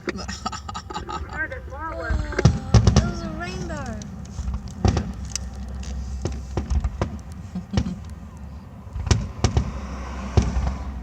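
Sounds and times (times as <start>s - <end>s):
fireworks bangs: 2.1s - 8.0s.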